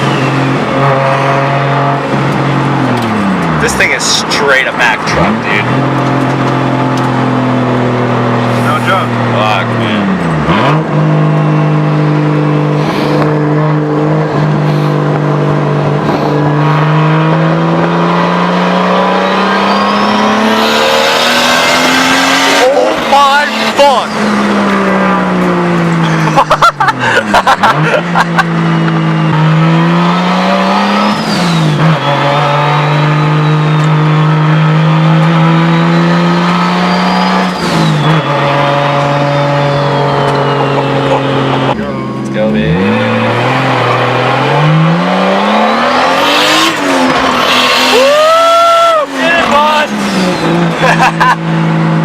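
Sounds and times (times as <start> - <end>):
car engine accelerating hard: 0.0 - 52.0
gear change air rush: 12.6 - 17.2
turbo whistle: 19.0 - 21.0, 31.0 - 34.2, 35.5 - 41.1, 45.4 - 46.7
faint high turbo whistle: 19.1 - 20.6, 36.8 - 40.9.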